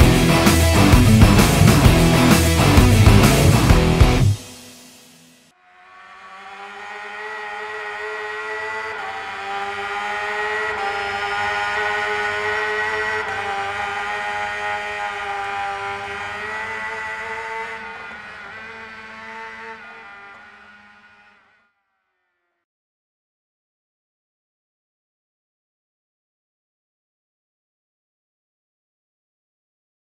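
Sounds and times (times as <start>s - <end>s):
motorcycle engine at high revs: 0.0s - 4.6s, 5.9s - 21.7s.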